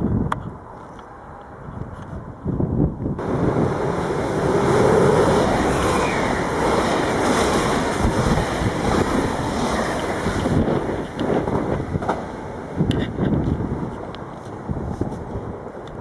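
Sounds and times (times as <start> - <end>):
train passing: 3.2 - 16.0.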